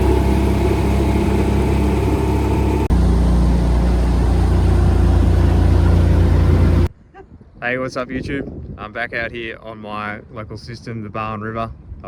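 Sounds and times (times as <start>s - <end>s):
engine humming steadily: 0.0s - 6.9s.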